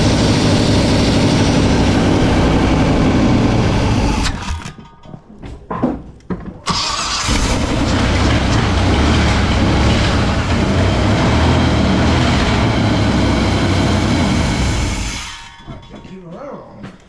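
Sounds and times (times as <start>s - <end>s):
car engine running loud: 0.0s - 4.6s, 6.7s - 15.5s.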